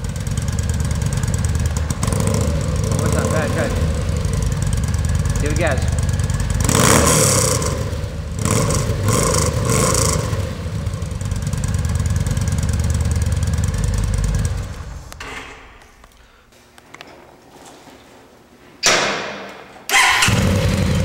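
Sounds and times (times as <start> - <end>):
motorcycle engine revving and idling: 0.0 - 15.2, 19.9 - 21.0.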